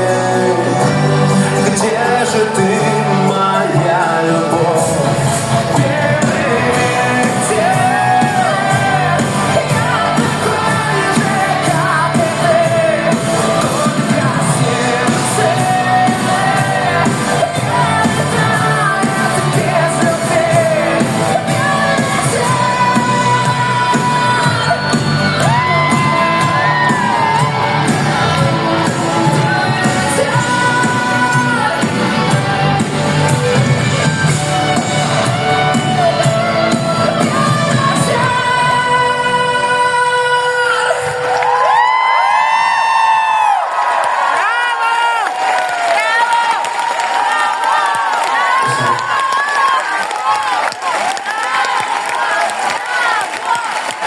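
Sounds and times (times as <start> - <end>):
man singing: 0.0 - 41.7
band playing pop ballad: 0.0 - 43.6.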